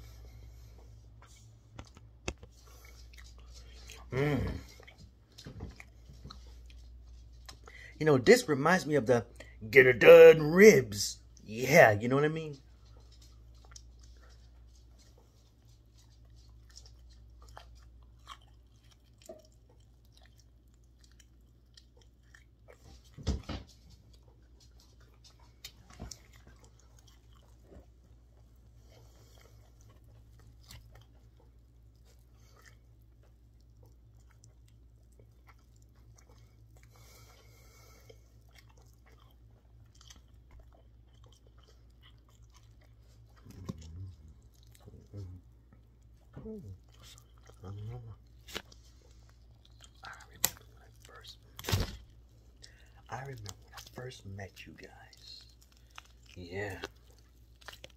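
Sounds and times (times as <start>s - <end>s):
person chewing ribs: 0.0s - 57.9s
wet clicks and smacks: 1.7s - 4.1s, 38.4s - 57.9s.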